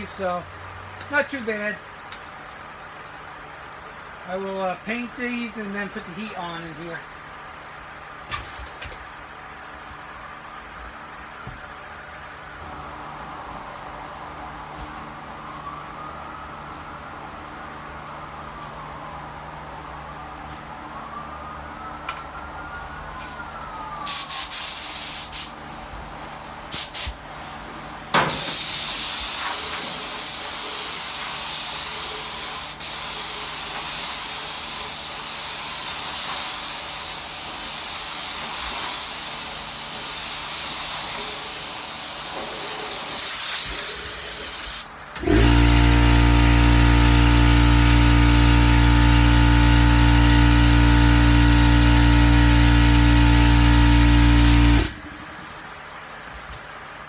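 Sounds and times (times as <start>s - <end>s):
paint spray gun hissing: 24.1s - 25.5s, 26.7s - 27.2s, 28.3s - 46.2s
loud steady motor hum: 45.2s - 55.4s.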